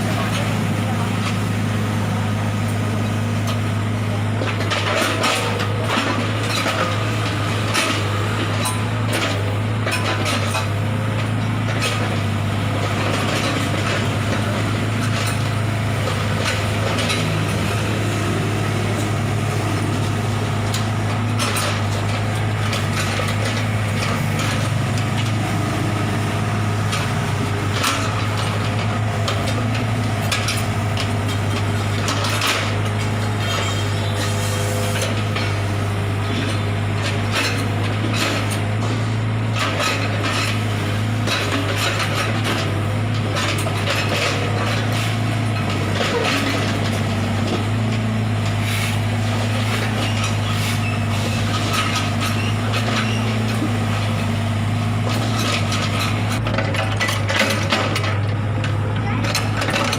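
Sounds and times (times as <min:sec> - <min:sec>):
road-repair tools clanking: 0:04.4 - 0:59.9
machine engine humming: 0:05.6 - 0:59.9.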